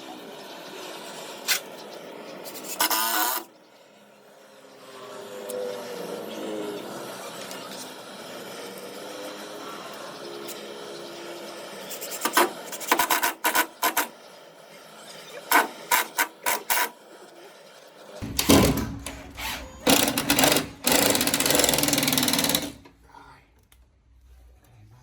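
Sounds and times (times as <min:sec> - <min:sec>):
tool rasping wood: 0:18.2 - 0:22.8.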